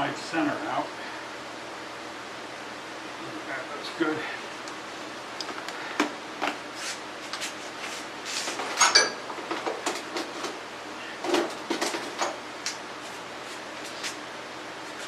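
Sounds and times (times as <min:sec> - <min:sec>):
metal tools clinking: 0:08.8 - 0:09.2.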